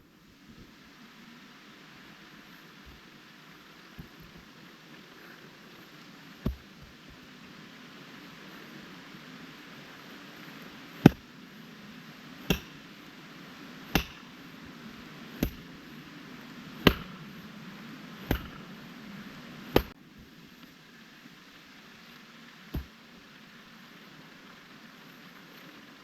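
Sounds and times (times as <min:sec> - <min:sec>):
hand tool strikes: 0:12.4 - 0:12.8, 0:14.0 - 0:14.3, 0:15.4 - 0:15.6, 0:16.8 - 0:17.2, 0:18.3 - 0:18.6.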